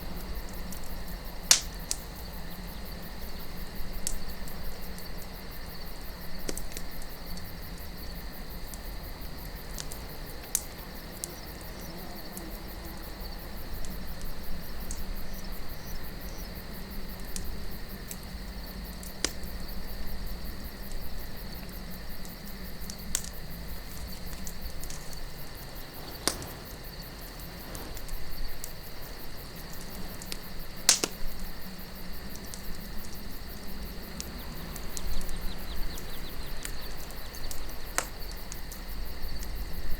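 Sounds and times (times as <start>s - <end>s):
sharp fire pops: 0.0s - 39.7s
campfire crackling: 0.0s - 39.9s
crickets chirping: 0.0s - 39.9s
low wind: 0.0s - 39.9s.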